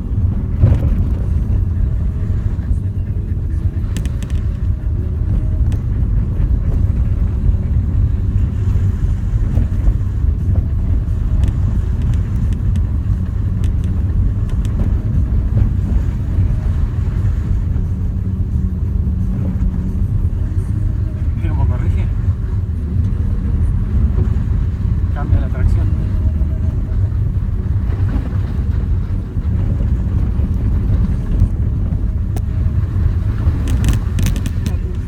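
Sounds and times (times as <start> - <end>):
engine and tyres rumbling: 0.0 - 35.0.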